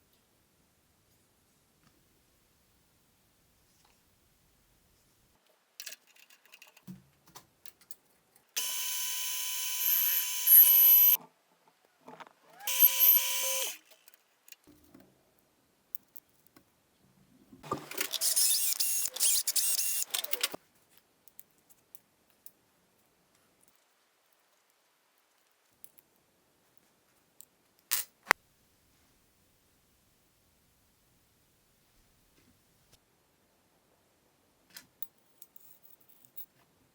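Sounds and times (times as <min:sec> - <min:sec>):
small electric motor whining: 0:08.6 - 0:11.2, 0:12.5 - 0:13.9, 0:18.0 - 0:20.6.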